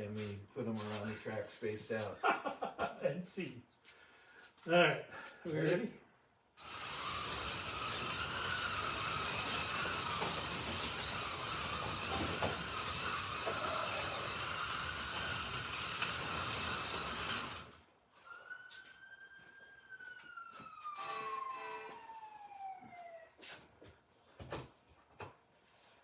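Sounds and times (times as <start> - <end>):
slot cars electric motor whine: 6.6 - 17.8
thin siren-like tone: 18.1 - 23.4.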